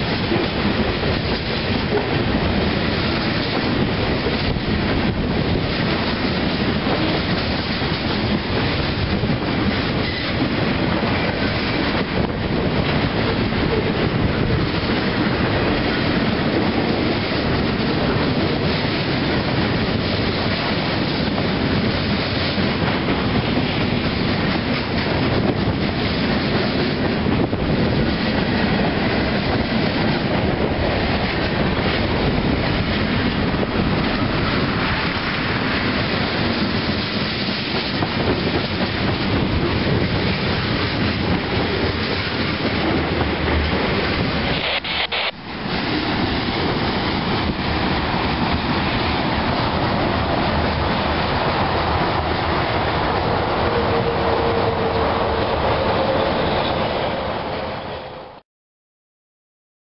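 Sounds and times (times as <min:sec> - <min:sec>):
freight train wheels clattering: 0:00.0 - 0:44.6.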